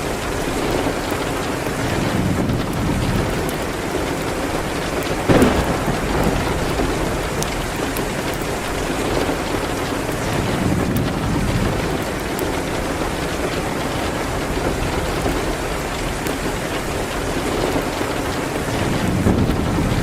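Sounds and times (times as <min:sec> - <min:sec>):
faint fire crackles: 0:00.0 - 0:20.0
steady rain: 0:00.0 - 0:20.0
low rumbles: 0:05.2 - 0:16.3.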